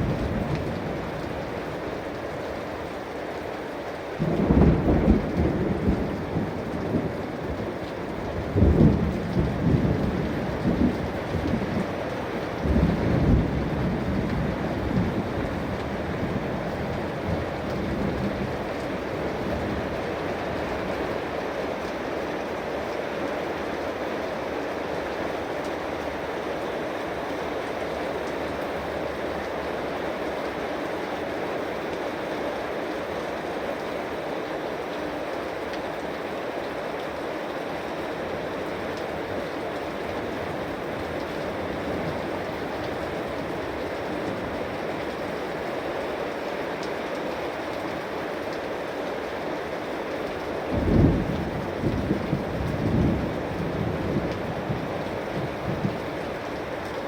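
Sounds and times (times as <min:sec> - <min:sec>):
heavy rain: 0:00.0 - 0:57.0
thunder rumbling: 0:04.2 - 0:20.0, 0:50.7 - 0:56.3.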